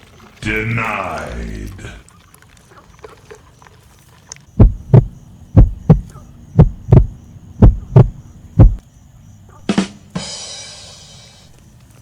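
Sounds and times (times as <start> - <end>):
heartbeat thumps: 4.6 - 8.8.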